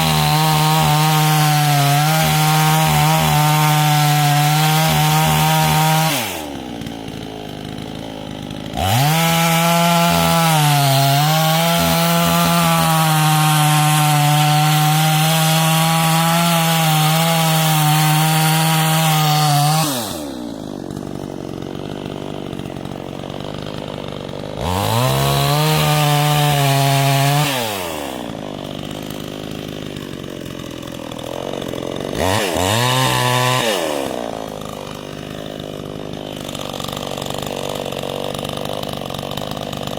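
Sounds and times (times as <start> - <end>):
chainsaw cutting wood: 0.0 - 39.9
chainsaw idling: 0.0 - 39.9.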